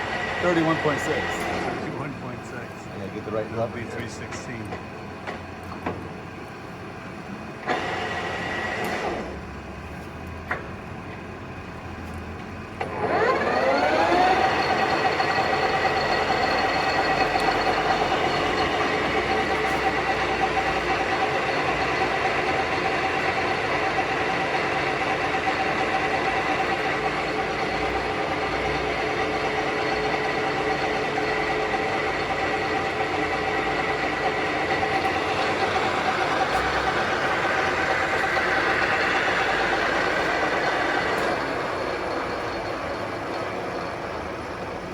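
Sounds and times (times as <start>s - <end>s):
lathe motor whine: 0.0s - 44.9s
short mechanical noise: 0.1s - 2.8s.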